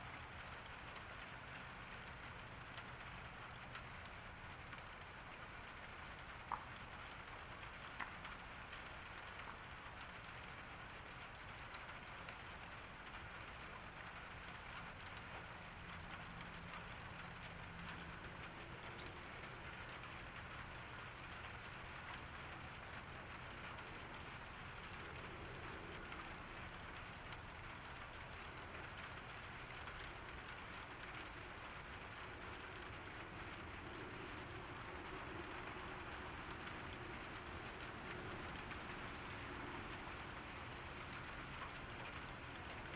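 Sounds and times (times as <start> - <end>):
light rain falling: 0.0 - 42.9.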